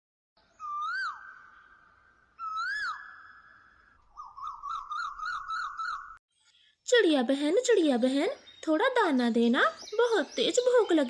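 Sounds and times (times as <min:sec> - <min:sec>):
whistled bird call: 0:00.5 - 0:06.2.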